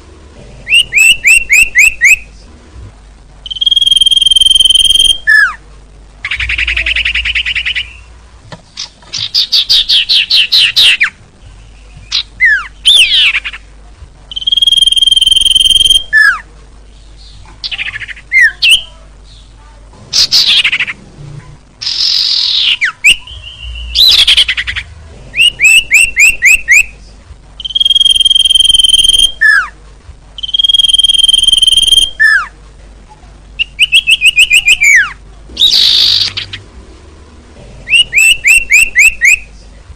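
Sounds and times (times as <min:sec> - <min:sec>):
recorded songbird lure call: 0:03.4 - 0:05.5, 0:14.3 - 0:16.4, 0:27.6 - 0:29.7, 0:30.4 - 0:32.5, 0:33.6 - 0:36.6.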